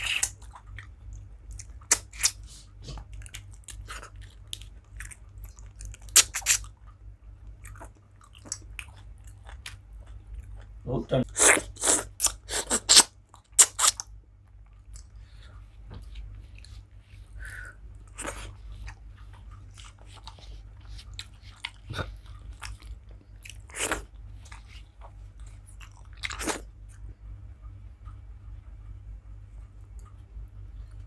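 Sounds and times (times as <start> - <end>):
person chewing with lip smacks: 0.0 - 27.2
steady low hum: 0.0 - 31.0.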